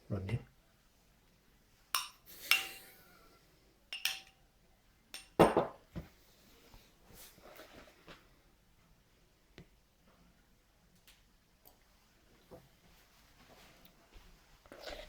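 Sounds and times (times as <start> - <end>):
spoon clinking against cup: 2.0 - 2.9, 3.9 - 4.4, 5.2 - 5.4.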